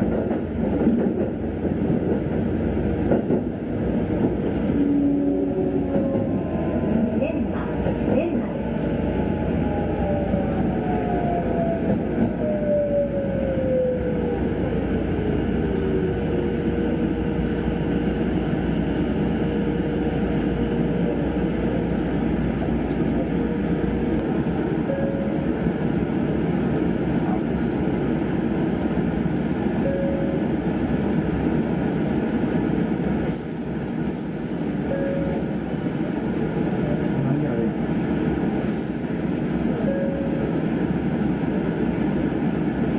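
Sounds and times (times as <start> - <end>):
train rumbling: 0.0 - 42.9.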